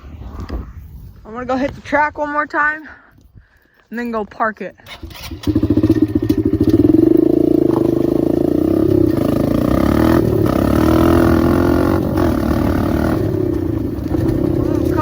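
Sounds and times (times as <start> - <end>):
dirt bike engine running: 5.2 - 15.0.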